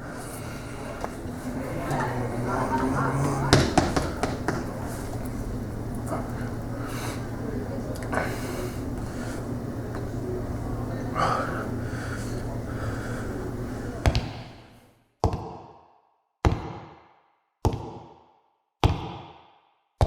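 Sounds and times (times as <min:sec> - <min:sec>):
low background rumble: 0:00.0 - 0:14.8.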